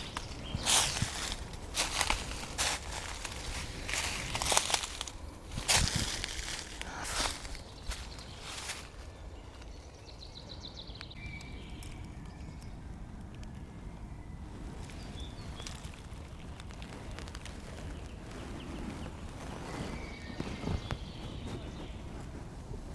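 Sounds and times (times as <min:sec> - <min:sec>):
low rumble: 0:00.0 - 0:08.9
crunching footsteps: 0:00.0 - 0:09.8, 0:14.5 - 0:22.3
small birds calling: 0:00.0 - 0:22.9.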